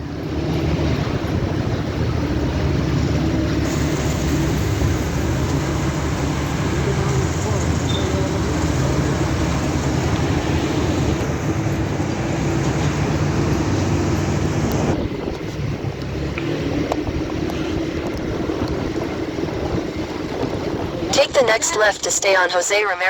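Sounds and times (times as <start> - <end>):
vehicle engine and road noise: 0.0 - 23.0
wind on microphone: 9.9 - 21.1.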